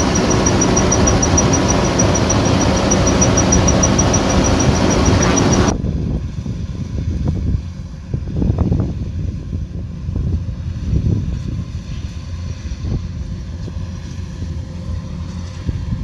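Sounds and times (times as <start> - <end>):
diesel engine rumbling: 0.0 - 5.7.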